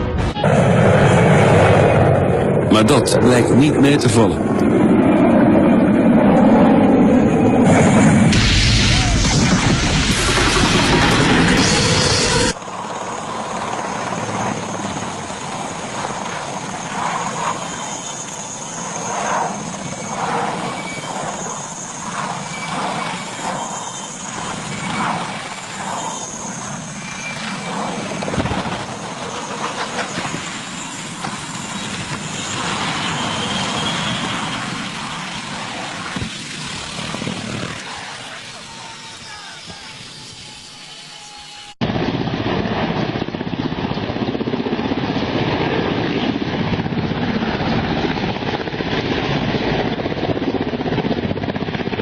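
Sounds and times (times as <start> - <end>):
helicopter engine and rotor: 0.0 - 52.0.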